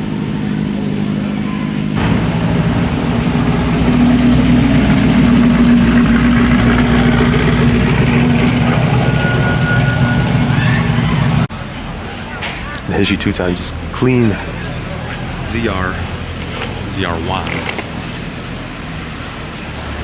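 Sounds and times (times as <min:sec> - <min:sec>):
car engine running: 0:02.0 - 0:10.4, 0:12.8 - 0:18.2.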